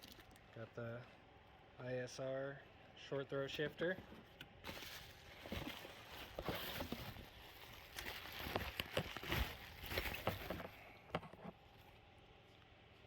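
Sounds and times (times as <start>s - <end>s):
rustling and crinkling: 3.8s - 13.0s.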